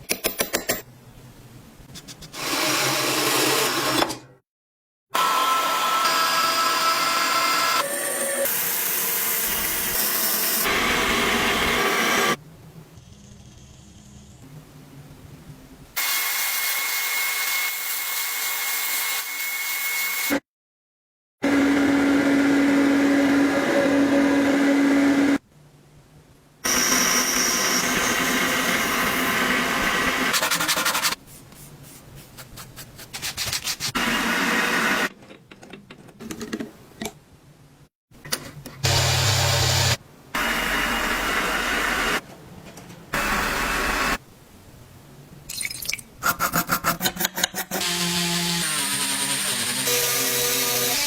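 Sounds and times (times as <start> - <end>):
scraping and rubbing of handwork: 1.9 - 2.5, 30.3 - 34.0.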